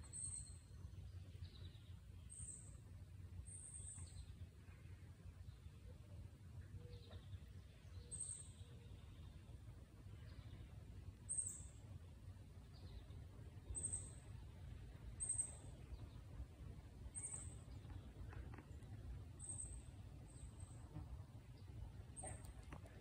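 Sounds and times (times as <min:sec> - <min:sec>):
faint bird chirps: 0:00.0 - 0:02.8, 0:03.4 - 0:09.5, 0:10.2 - 0:11.8, 0:12.7 - 0:14.4, 0:15.1 - 0:16.4, 0:17.0 - 0:21.0
low steady rumble: 0:00.0 - 0:23.0.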